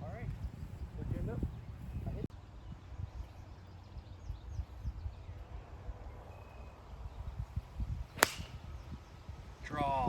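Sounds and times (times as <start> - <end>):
wind on microphone rumble: 0.0 - 6.2, 6.8 - 10.0
faint bird chirps: 1.6 - 7.4.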